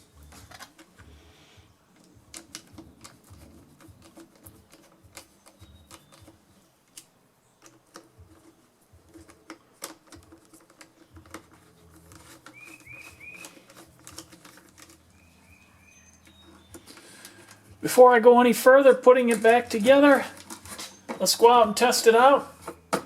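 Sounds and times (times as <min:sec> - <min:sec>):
light clicks on plastic parts: 0:02.0 - 0:15.2.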